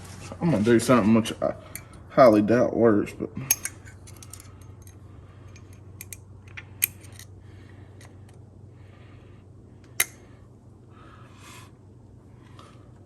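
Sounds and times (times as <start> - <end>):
steady low hum: 0.0 - 13.0
metal parts scraping and clicking: 3.5 - 7.3.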